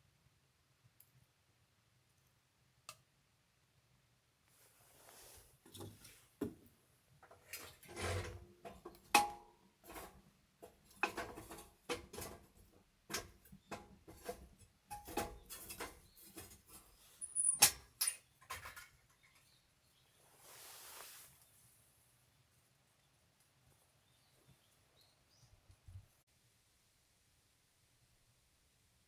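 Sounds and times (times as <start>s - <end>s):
objects knocking and clattering: 5.7s - 19.5s.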